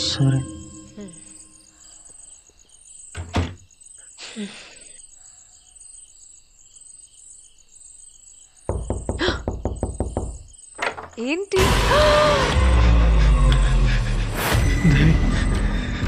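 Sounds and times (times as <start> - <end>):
crickets chirping: 0.0 - 12.2, 12.8 - 16.0
thump: 3.2 - 3.6.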